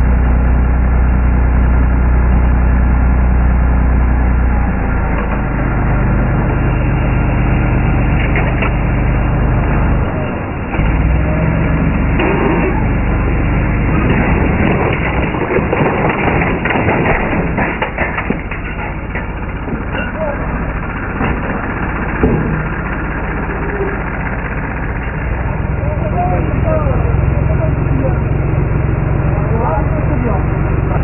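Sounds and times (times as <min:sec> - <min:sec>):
vehicle engine running: 0:00.0 - 0:31.0
knocks and cracks: 0:13.9 - 0:20.1.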